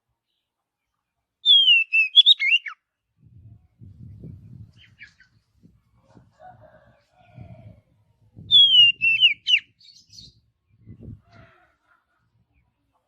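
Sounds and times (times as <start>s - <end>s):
bird singing whistled phrase: 1.5s - 2.8s, 8.5s - 10.3s
soft low rumbling: 3.2s - 4.9s.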